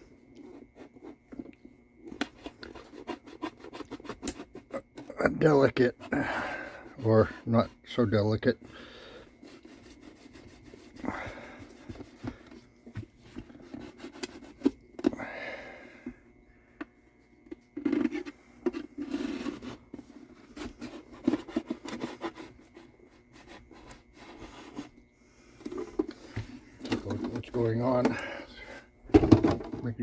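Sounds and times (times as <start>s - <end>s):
hand tool scraping wood: 2.2s - 14.8s, 17.8s - 28.8s.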